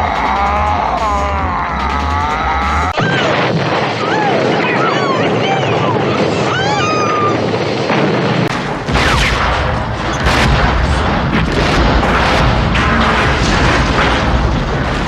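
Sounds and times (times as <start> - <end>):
heavy low rumble: 0.0 - 15.0
explosions: 2.8 - 15.0
gunfire: 7.8 - 15.0.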